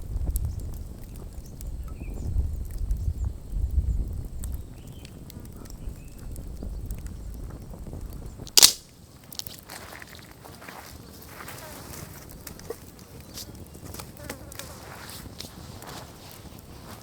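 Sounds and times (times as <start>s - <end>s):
campfire crackling: 0.0s - 17.0s
loud pop from fire: 8.5s - 8.9s.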